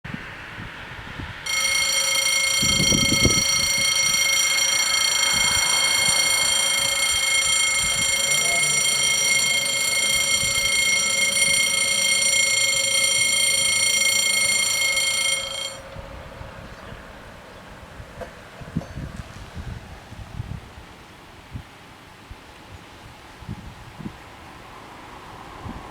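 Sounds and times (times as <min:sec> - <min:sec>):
level-crossing warning bells: 0:01.4 - 0:17.8.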